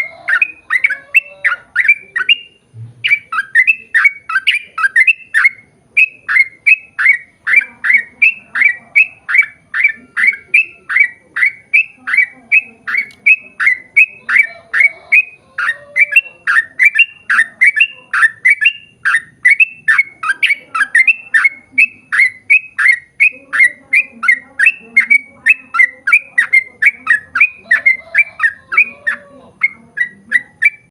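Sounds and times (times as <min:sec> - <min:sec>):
bulbul calling sharp notes: 0:00.0 - 0:30.9.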